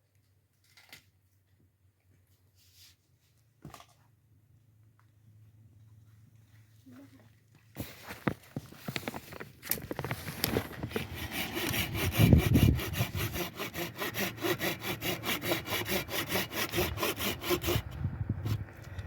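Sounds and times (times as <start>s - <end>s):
hand saw cutting wood: 10.0s - 19.0s.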